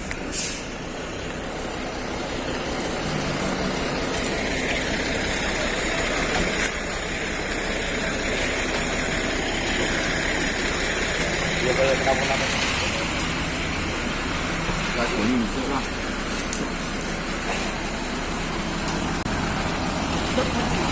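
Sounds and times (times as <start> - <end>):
diesel engine running: 0.0 - 20.9
short hiss: 0.3 - 0.8.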